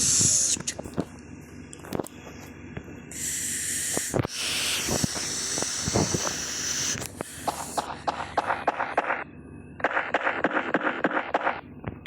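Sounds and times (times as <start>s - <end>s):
strong steady hiss: 0.0s - 1.0s, 3.1s - 9.2s.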